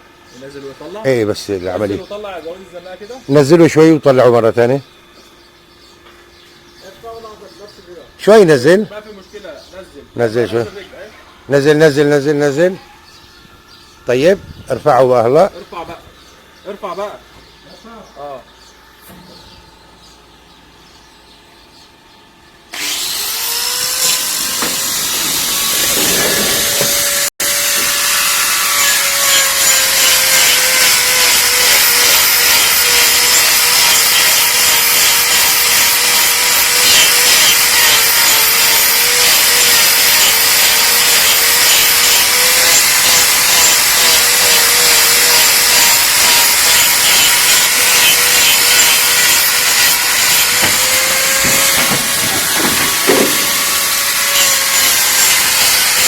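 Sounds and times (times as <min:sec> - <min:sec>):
angle grinder cutting hoof: 0:22.7 - 0:56.0.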